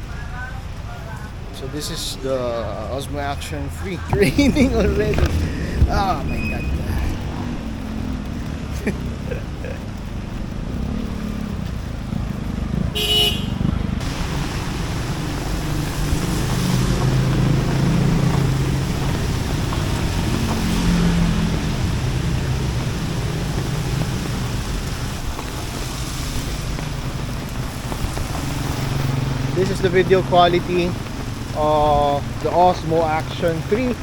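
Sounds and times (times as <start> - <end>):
road traffic passing: 0.0 - 34.0
vehicle horn toot: 12.9 - 13.6.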